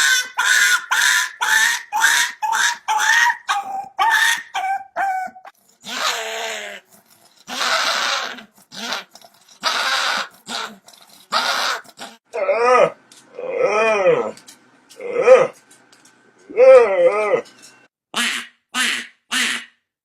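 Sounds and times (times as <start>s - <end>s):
dog yipping and calling: 0.0s - 12.2s.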